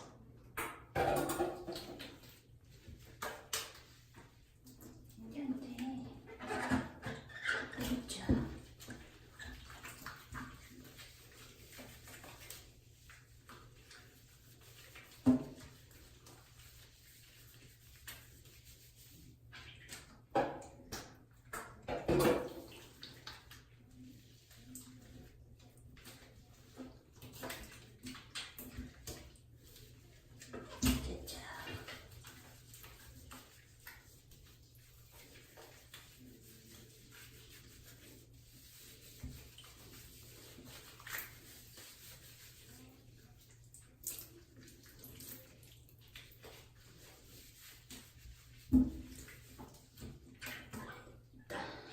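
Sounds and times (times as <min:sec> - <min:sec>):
water splashing in bathtub: 0:00.0 - 0:51.9
faint rubbing and handling: 0:05.4 - 0:20.0, 0:28.8 - 0:50.4.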